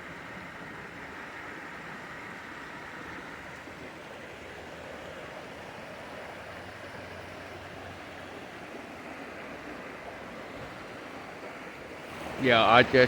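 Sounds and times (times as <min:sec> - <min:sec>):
mountain stream water rushing: 0:00.0 - 0:13.0.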